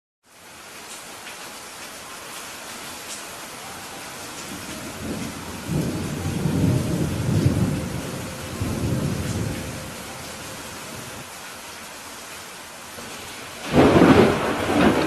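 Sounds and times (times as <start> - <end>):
steady rain hissing: 0.2 - 15.0
thunder rumbling: 4.2 - 11.3, 13.1 - 15.0.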